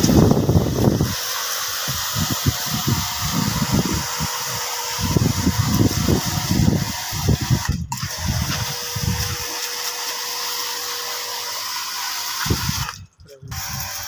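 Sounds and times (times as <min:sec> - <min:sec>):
spraying hiss: 0:00.0 - 0:07.6.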